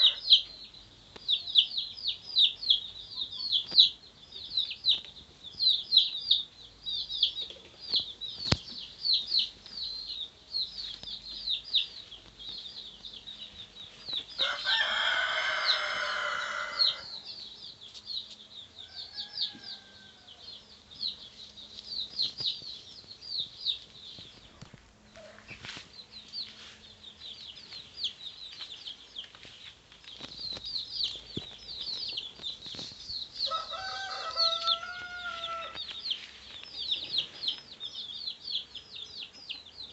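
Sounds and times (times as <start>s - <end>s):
rooster crowing: 0.0s - 0.4s, 14.4s - 17.2s, 18.8s - 20.6s, 33.4s - 35.8s.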